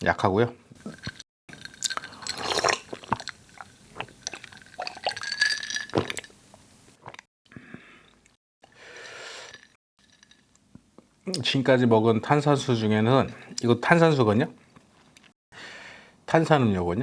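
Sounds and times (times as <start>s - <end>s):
sipping and swallowing drink: 0.8s - 10.4s.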